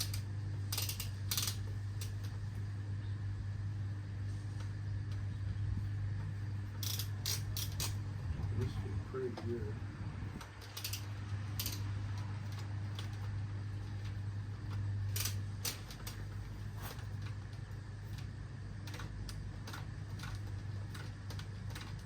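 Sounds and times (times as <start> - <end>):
metallic clicks of tools: 0.0 - 2.3, 10.4 - 13.2
steady low hum: 0.0 - 22.0.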